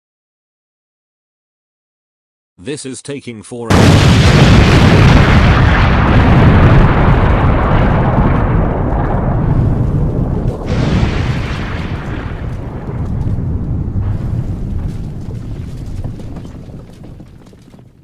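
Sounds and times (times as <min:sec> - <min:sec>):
explosion: 0:03.7 - 0:18.0.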